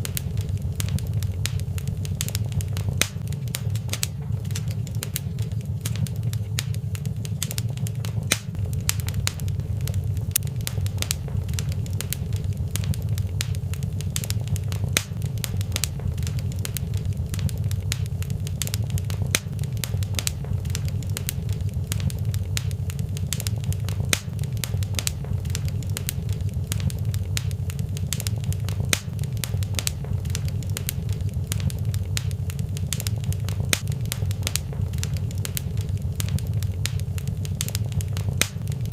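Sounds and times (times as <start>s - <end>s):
low fire rumble: 0.0s - 38.9s
sharp pops and snaps: 0.0s - 38.9s
wood fire crackling: 0.0s - 38.9s.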